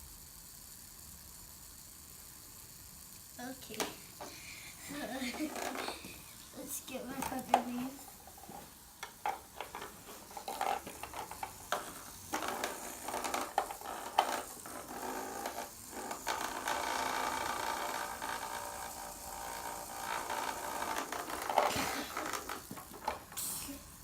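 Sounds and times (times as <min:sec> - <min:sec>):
plastic toy pieces clicking: 0:09.0 - 0:17.2.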